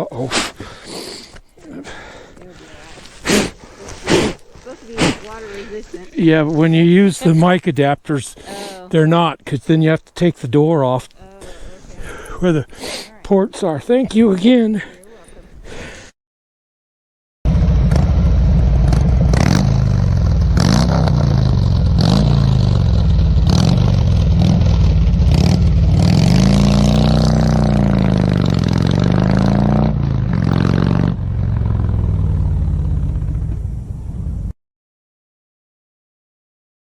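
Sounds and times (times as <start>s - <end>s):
vehicle engine revving: 17.5s - 34.6s.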